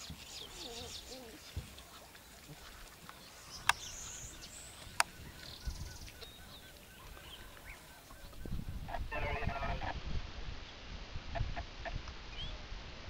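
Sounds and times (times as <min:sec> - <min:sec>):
birds chirping and whistling: 0:03.2 - 0:08.9.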